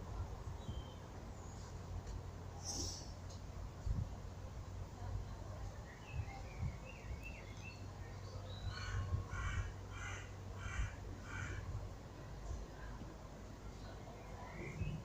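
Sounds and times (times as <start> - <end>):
faint bird twittering: 0.6 - 1.7, 13.8 - 15.0.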